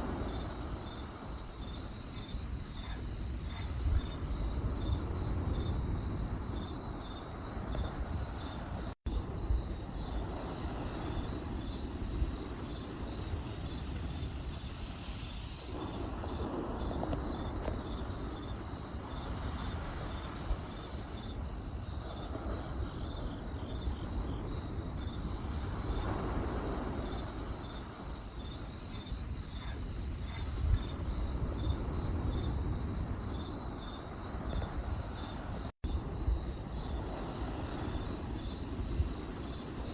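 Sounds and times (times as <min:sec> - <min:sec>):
crickets chirping: 0:00.0 - 0:39.9
campfire crackling pops: 0:15.7 - 0:18.1.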